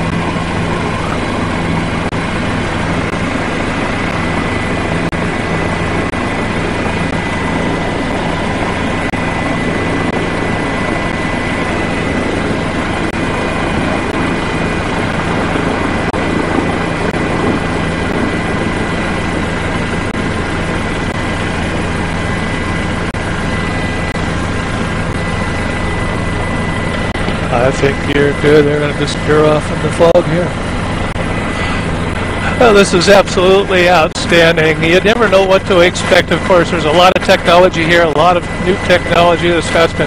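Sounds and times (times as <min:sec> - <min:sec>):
aircraft engine rush: 0:00.0 - 0:40.0
high steady whine: 0:00.0 - 0:40.0.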